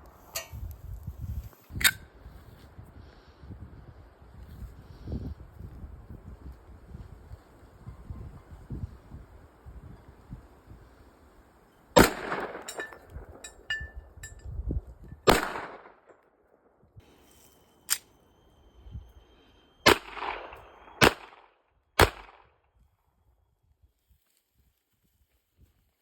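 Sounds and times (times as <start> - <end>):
gunshots with echo: 12.0 - 12.9, 15.3 - 16.0, 19.8 - 22.5.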